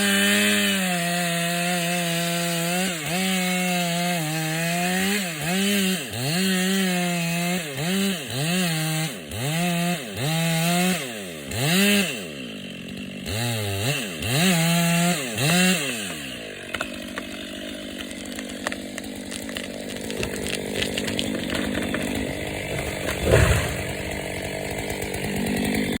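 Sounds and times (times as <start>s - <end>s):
chainsaw cutting wood: 0.0s - 26.0s
branches snapping: 15.4s - 25.9s
crackling and rustling: 18.0s - 24.2s
loud thump: 22.7s - 24.2s.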